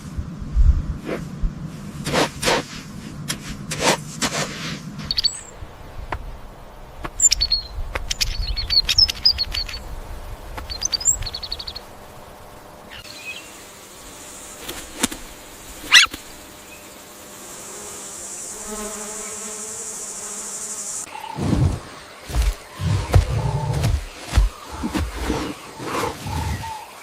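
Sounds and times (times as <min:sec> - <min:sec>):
small birds chirping: 0:05.0 - 0:13.8, 0:15.8 - 0:17.0, 0:20.8 - 0:27.0.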